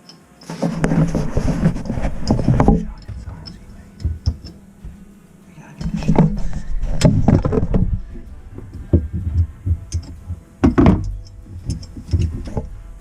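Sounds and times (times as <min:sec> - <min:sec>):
tools knocking on faucet fittings: 0:03.0 - 0:05.0, 0:08.6 - 0:12.7.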